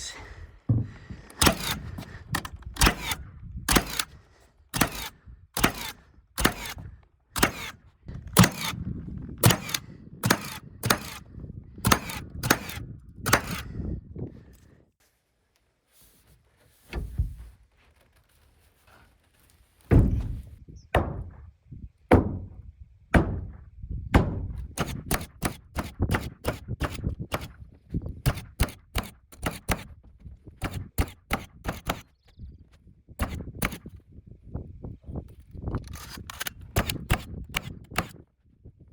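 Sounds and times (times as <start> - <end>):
heavy thumps on sheathing: 0.6 - 4.2, 4.8 - 8.8, 9.4 - 11.3, 11.9 - 13.7, 19.9 - 21.5, 23.2 - 27.5
nail gun shots: 1.4 - 8.8, 9.4 - 13.7, 23.2 - 23.6, 24.2 - 27.6, 28.2 - 29.9, 30.6 - 32.1, 33.2 - 33.9, 35.9 - 38.2.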